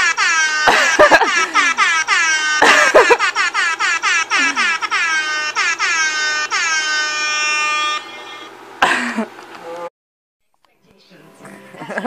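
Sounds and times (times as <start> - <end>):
novelty horn honks from phone: 0.0 - 2.9, 4.6 - 8.5.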